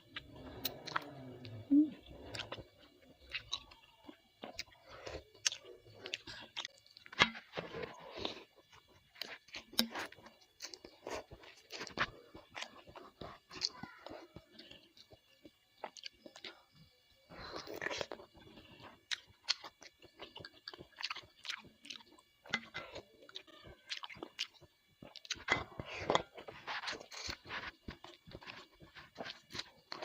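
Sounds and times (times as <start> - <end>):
close-up chewing: 0.0 - 30.0.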